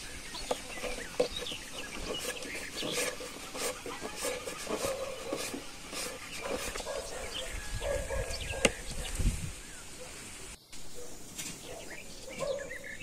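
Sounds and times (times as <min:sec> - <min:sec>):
faint bird chirps: 0:06.2 - 0:13.0.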